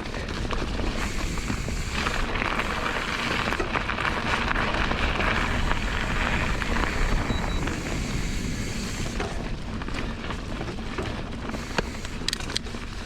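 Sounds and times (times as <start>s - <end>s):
wind on microphone: 0.0s - 10.2s
bike knocks and rattles: 0.0s - 13.0s
bike tyre noise: 0.0s - 13.0s.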